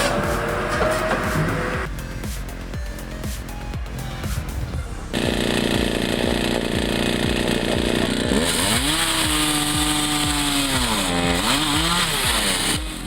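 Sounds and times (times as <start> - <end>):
chainsaw cutting wood: 5.1 - 13.0.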